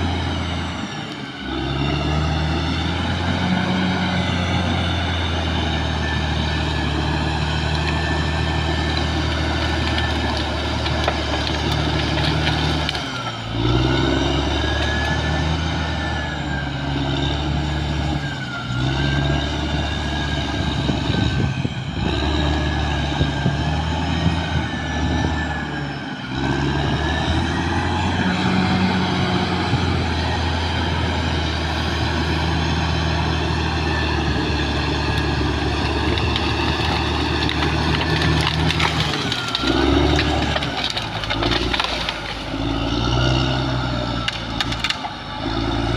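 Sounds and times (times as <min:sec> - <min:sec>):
bulldozer diesel engine running: 0:00.0 - 0:45.9.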